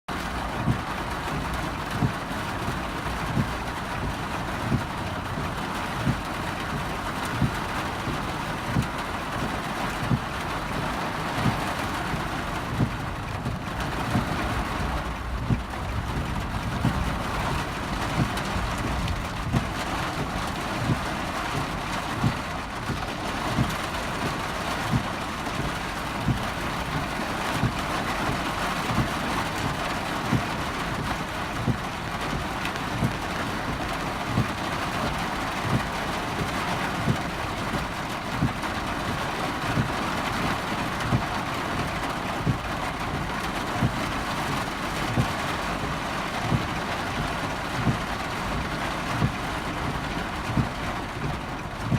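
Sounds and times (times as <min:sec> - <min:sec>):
heavy rain drumming on car roof: 0:00.1 - 0:51.9.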